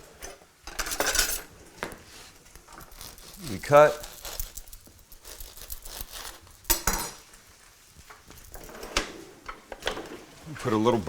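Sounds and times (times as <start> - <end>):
kitchen utensils clicking and knocking: 0.2 - 1.5, 6.7 - 7.2
knife cutting through bread roll: 2.1 - 7.0.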